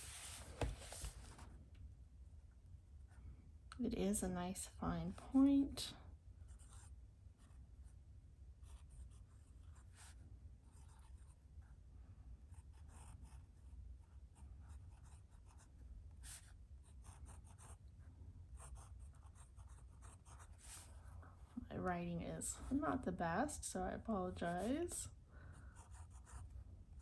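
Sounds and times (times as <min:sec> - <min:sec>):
pen nib scratching on paper: 0:18.6 - 0:21.2, 0:25.7 - 0:27.0.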